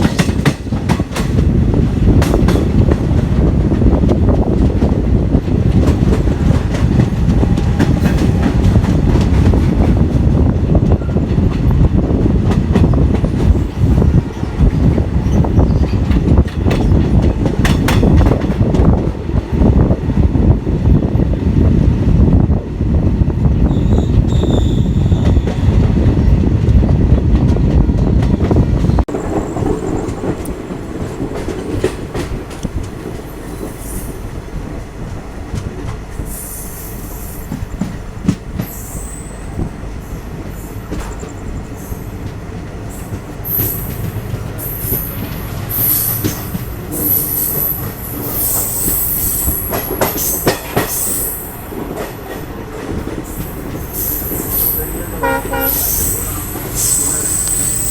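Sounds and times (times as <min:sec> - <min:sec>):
train rumbling on rails: 0:00.0 - 0:57.9
wheels squealing: 0:23.7 - 0:25.7, 0:53.2 - 0:57.9.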